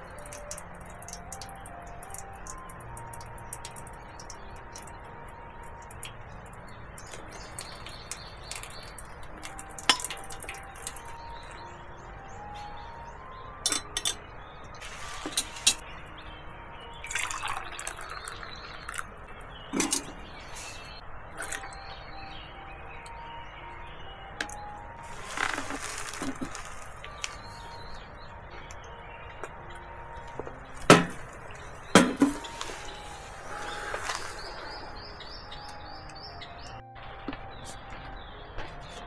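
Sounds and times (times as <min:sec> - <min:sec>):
liquid dripping and pouring: 0:00.0 - 0:11.6, 0:14.8 - 0:16.0, 0:17.0 - 0:21.7, 0:24.4 - 0:28.0, 0:30.2 - 0:35.8
soft background music: 0:00.0 - 0:39.0.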